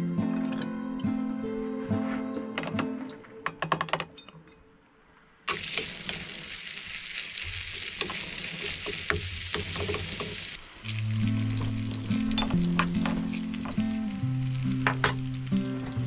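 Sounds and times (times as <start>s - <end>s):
background music: 0.0s - 4.8s, 10.9s - 16.0s
food sizzling in a pan: 5.5s - 16.0s.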